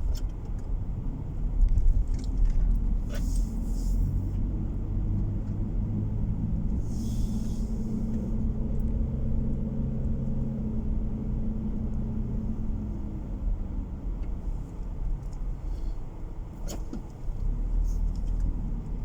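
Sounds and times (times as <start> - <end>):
engine and tyre rumble in car: 0.0 - 19.0
brief hiss: 6.9 - 8.0.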